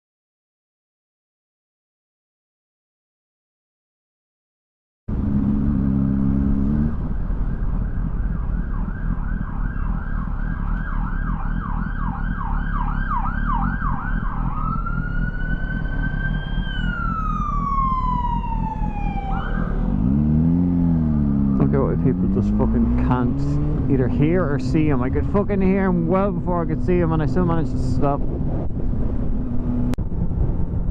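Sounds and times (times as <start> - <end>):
motorcycle engine: 5.1 - 10.5, 13.1 - 30.5
emergency vehicle siren: 6.9 - 21.7
wind noise: 22.3 - 30.9.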